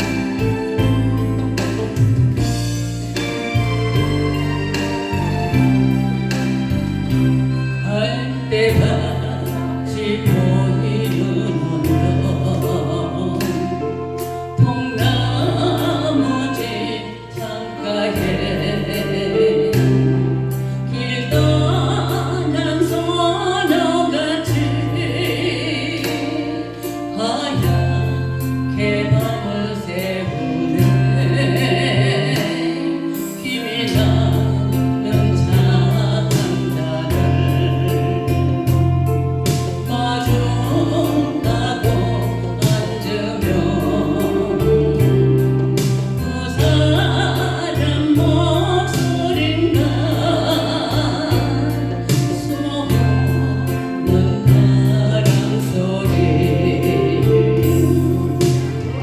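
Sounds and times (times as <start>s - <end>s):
bass notes: 0.0s - 59.0s
person singing: 3.1s - 59.0s.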